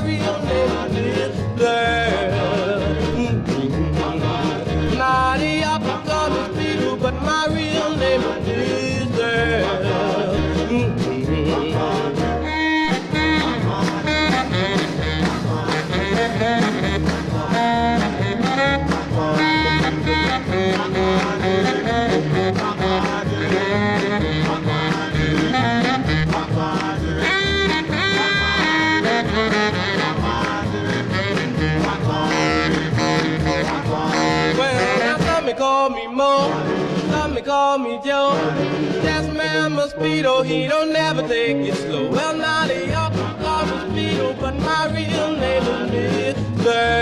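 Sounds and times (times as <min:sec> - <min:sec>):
bass and drum beat: 0:00.0 - 0:35.4, 0:42.4 - 0:47.0
saxophone solo: 0:12.4 - 0:26.6, 0:27.2 - 0:35.5.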